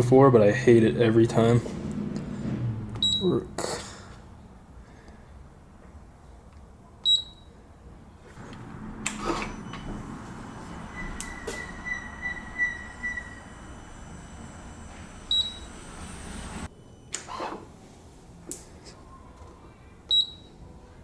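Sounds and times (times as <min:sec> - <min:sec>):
short high beeps: 0:03.0 - 0:03.3, 0:10.7 - 0:13.6
faint high whine: 0:09.4 - 0:17.1.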